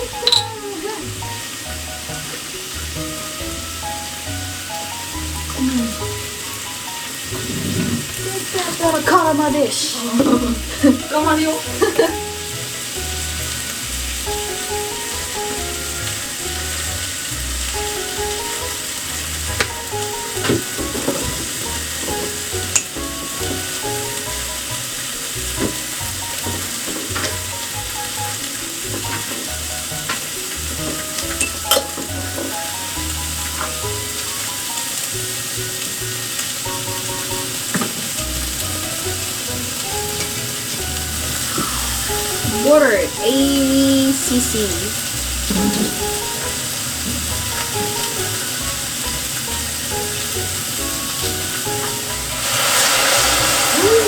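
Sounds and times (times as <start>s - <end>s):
food sizzling in a pan: 0.0s - 54.0s
quiet background music: 0.0s - 54.0s.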